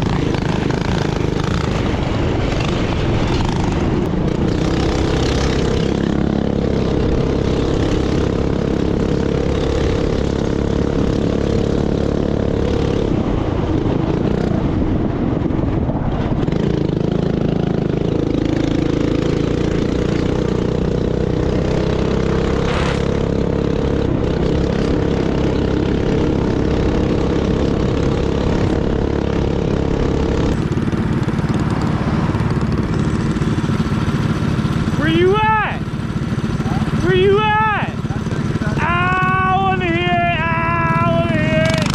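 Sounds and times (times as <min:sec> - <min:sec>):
small motorbike engine revving: 0:16.6 - 0:39.6, 0:40.3 - 0:41.9.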